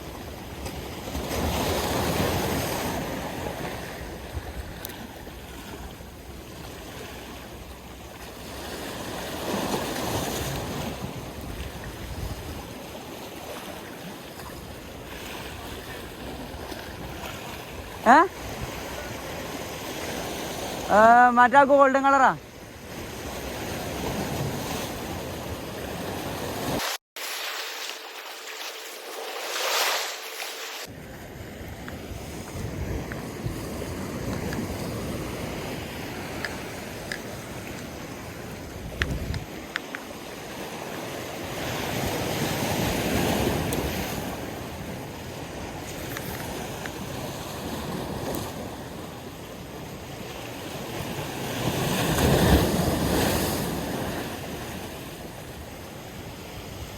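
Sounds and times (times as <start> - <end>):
waves washing: 0.0 - 56.9
wind on the microphone: 10.5 - 12.8, 30.9 - 40.1.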